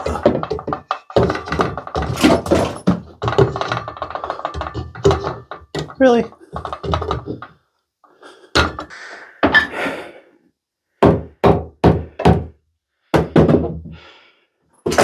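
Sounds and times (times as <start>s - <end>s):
knocks and thuds: 0.0s - 7.5s, 11.0s - 12.6s, 13.2s - 14.0s.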